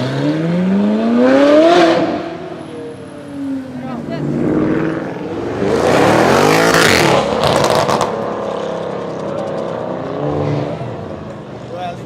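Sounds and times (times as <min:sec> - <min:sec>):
car engine revving hard: 0:00.0 - 0:02.4, 0:04.3 - 0:08.9.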